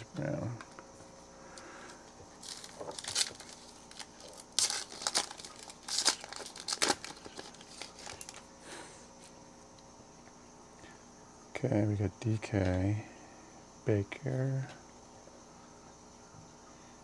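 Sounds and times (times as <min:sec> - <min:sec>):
faint handling of cards: 0:00.1 - 0:09.4
foil wrapper tearing and crinkling: 0:02.4 - 0:08.5.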